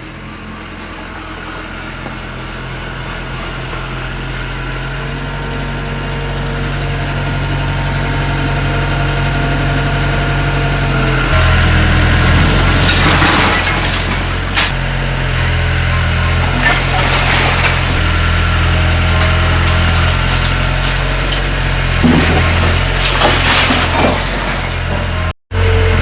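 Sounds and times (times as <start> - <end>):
heavy machine engine droning: 0.0 - 26.0
demolition knocks: 11.1 - 25.3.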